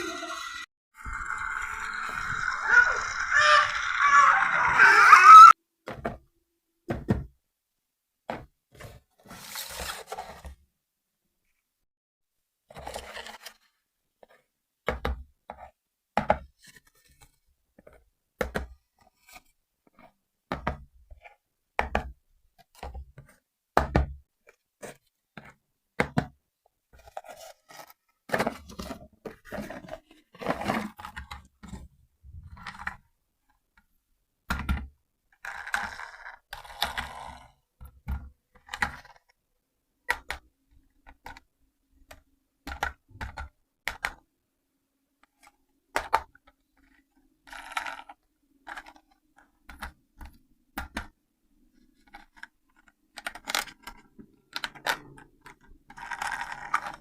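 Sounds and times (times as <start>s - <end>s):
toy parts clicking and knocking: 0.0s - 5.2s, 45.9s - 51.1s, 52.0s - 57.0s.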